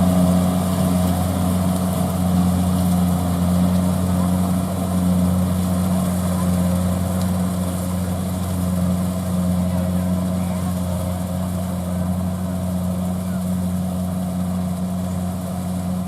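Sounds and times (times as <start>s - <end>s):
harvester engine running: 0.0s - 16.0s.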